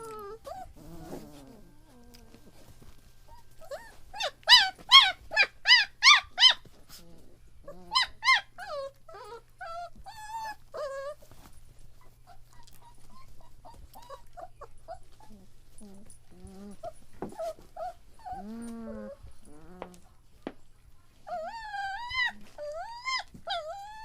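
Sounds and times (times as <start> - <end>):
puppy whimpering: 0.0 - 20.1, 21.2 - 24.0
puppy yelping: 3.3 - 7.0, 7.7 - 11.2, 12.2 - 20.0, 21.3 - 24.0.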